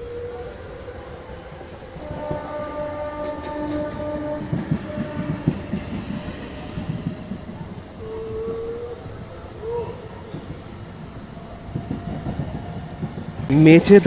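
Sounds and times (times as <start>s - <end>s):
train horn: 0.0s - 10.3s
train wheels clattering: 2.0s - 8.1s, 10.2s - 14.0s.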